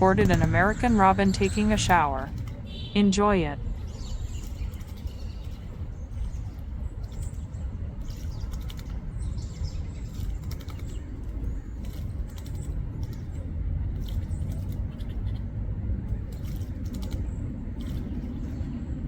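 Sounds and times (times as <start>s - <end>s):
steady low rumble: 0.0s - 19.0s
bird splashing water: 3.6s - 15.4s, 16.1s - 18.8s
bird wings fluttering: 4.3s - 13.4s, 16.2s - 18.8s.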